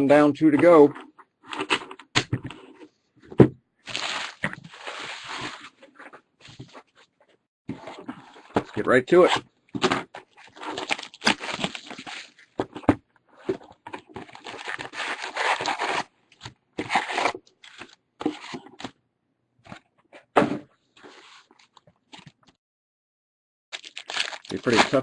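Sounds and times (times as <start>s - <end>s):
foil packs ripping and rustling: 3.9s - 5.7s, 10.4s - 12.4s, 14.2s - 16.1s, 23.8s - 25.0s.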